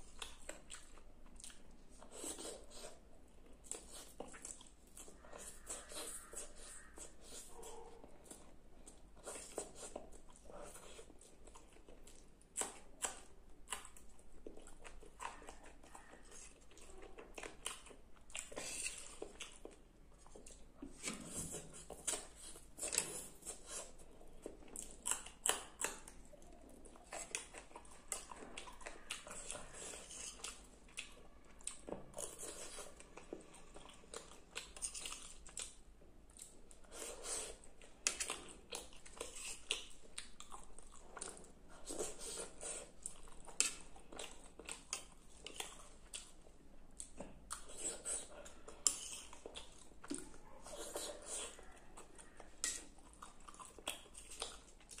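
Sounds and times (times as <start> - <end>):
wet chewing mouth sounds: 0.0 - 55.0.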